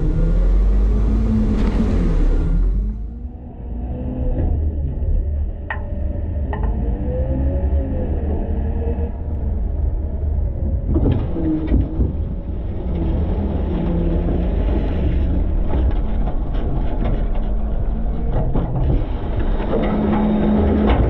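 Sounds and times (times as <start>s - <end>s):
garbage truck engine rumbling: 0.0s - 21.0s
clatter: 4.3s - 21.0s
truck body rattling and knocking: 10.6s - 12.8s, 15.2s - 21.0s.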